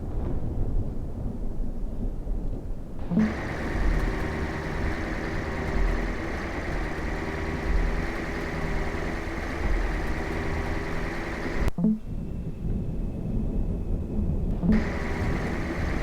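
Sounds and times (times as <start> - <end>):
vehicle engine running: 3.0 - 11.9, 14.5 - 16.0.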